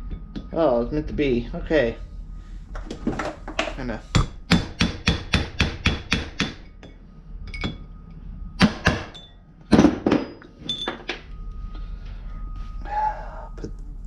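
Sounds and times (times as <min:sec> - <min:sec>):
hammer tapping punch on metal: 0:04.1 - 0:07.0
metallic ring: 0:06.5 - 0:13.6.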